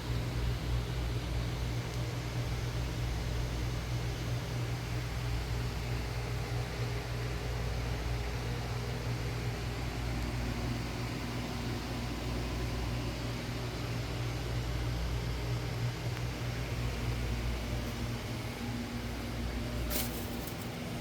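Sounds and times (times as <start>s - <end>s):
refrigerator compressor humming: 0.0s - 21.0s.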